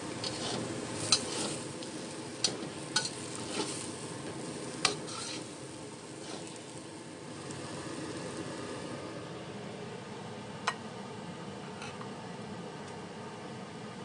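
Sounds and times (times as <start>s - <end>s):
food sizzling: 0.0s - 9.5s
metal spatula scraping frying pan: 0.2s - 6.7s.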